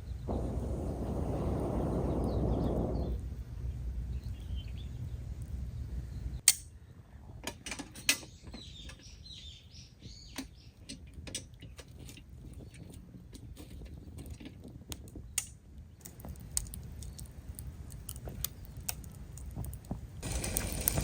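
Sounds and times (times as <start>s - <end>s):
low rumble: 0.0s - 6.4s
small birds chirping: 0.0s - 7.1s, 8.0s - 14.4s, 15.1s - 19.6s
sharp clicks and snaps: 14.6s - 20.0s.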